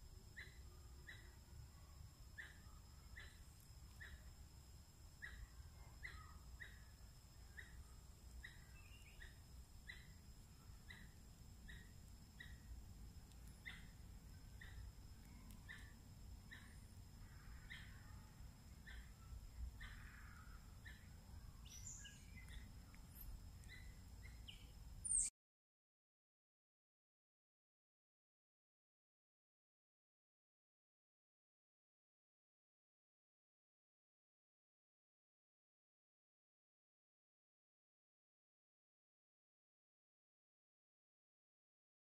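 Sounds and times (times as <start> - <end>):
low outdoor rumble: 0.0 - 25.0
faint high-pitched whine: 0.0 - 25.3
small bird chirping: 0.1 - 25.3.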